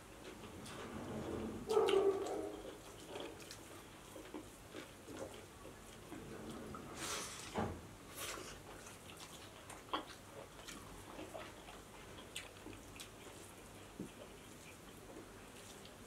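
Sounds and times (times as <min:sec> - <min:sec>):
wet chewing and lip smacks: 0:01.7 - 0:06.2, 0:08.2 - 0:16.0.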